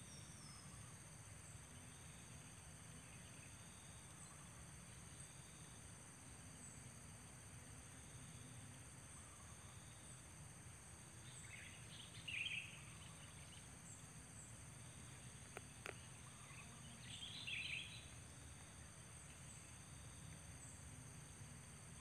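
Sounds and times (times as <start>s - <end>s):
high insect buzz: 0.1s - 22.0s
bird chirping: 11.2s - 14.5s, 15.1s - 18.2s.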